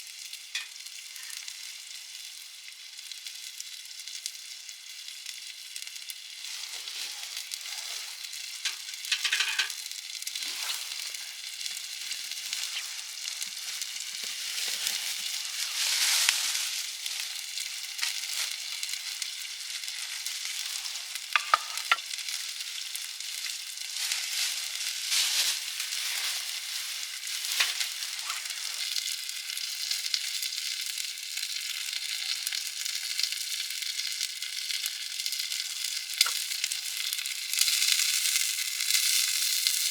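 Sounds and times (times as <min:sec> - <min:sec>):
campfire crackling and hissing: 0:00.0 - 0:39.9
sharp fire pops: 0:36.2 - 0:36.5.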